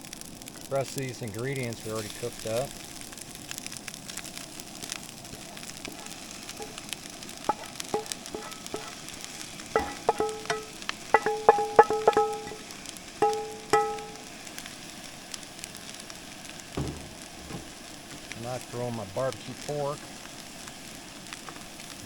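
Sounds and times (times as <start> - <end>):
food sizzling in a frying pan: 0.0 - 22.0
utensil clinking metal dish: 7.5 - 9.0, 9.8 - 14.2.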